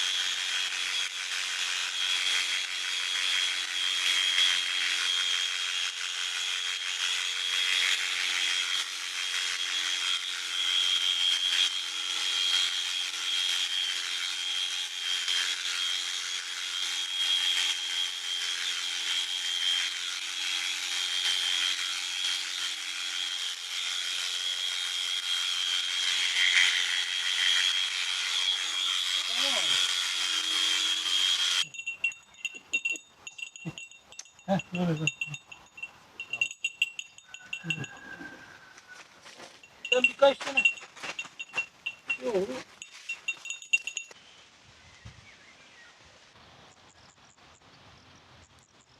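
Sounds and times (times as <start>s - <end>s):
electric clippers whining: 0.0s - 38.9s.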